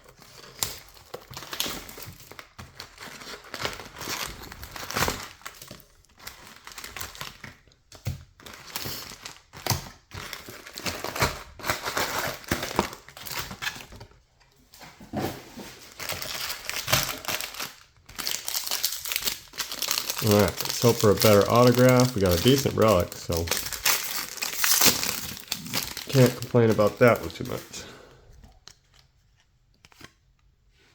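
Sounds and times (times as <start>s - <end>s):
card pack wrappers crinkling: 0.0s - 14.2s, 15.8s - 30.3s
cards being shuffled: 28.7s - 30.2s.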